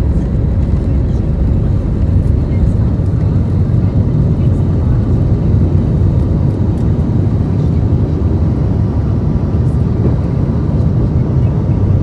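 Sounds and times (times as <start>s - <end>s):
airflow over fuselage: 0.0s - 11.3s
jet engines rumbling: 0.0s - 12.0s.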